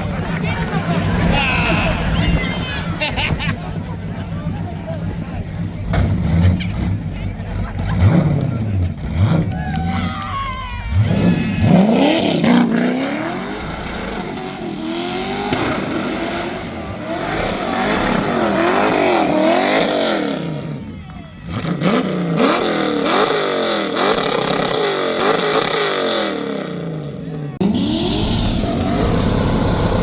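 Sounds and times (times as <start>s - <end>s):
car engine revving hard: 5.8s - 10.0s, 10.9s - 30.0s.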